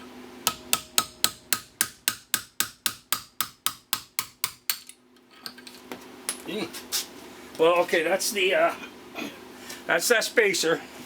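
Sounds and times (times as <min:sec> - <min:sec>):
hammer tapping metal punch: 0:00.4 - 0:05.0.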